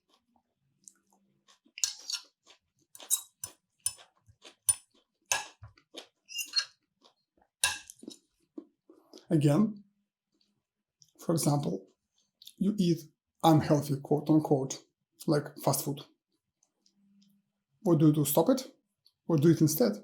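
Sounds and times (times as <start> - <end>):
person chewing food: 0.0 - 9.3, 10.2 - 11.2, 11.8 - 12.6.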